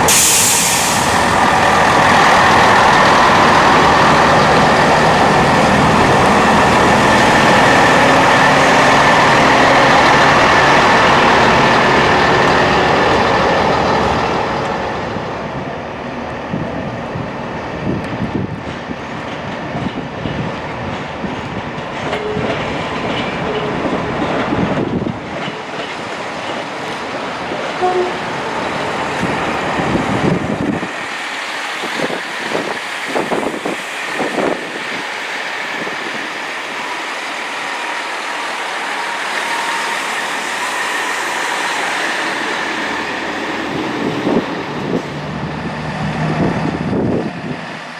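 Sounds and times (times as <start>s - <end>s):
train running past: 0.0s - 47.9s
train clicks: 18.0s - 28.0s.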